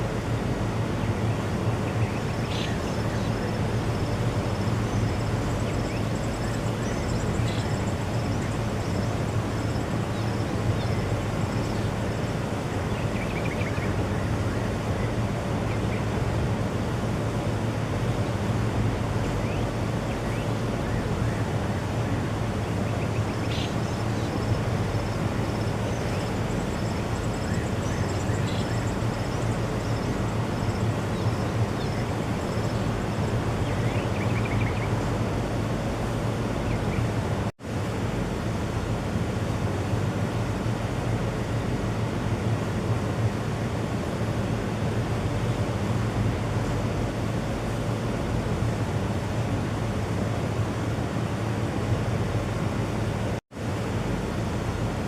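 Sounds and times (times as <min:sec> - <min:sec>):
steady low hum: 0:00.0 - 0:55.0
faint bird chirps: 0:01.0 - 0:16.0, 0:22.8 - 0:32.9.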